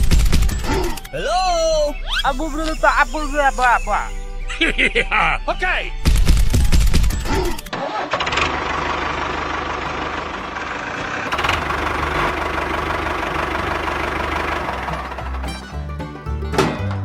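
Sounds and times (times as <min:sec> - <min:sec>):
engine idling: 0:07.6 - 0:17.0.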